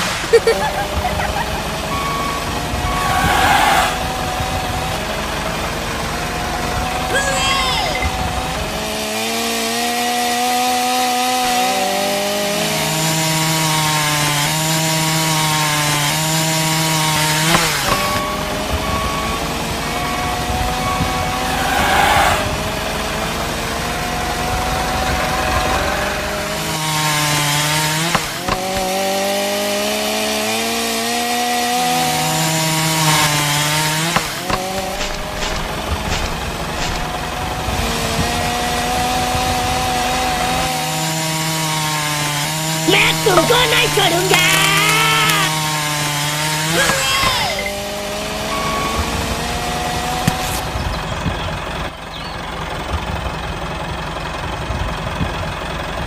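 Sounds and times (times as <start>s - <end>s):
toy saw motor whine: 0.6s - 4.2s, 16.8s - 23.0s, 42.9s - 50.7s.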